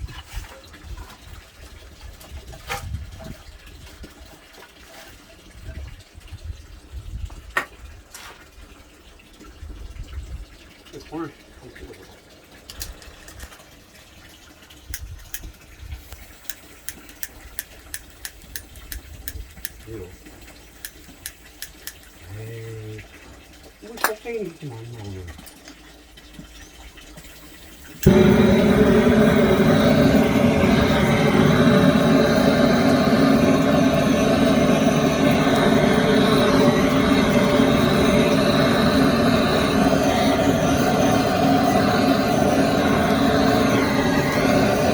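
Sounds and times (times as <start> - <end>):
firewood crackling and popping: 14.8 - 22.2
wood fire burning: 14.8 - 22.2, 27.2 - 44.9
low rush of flames: 27.3 - 44.9.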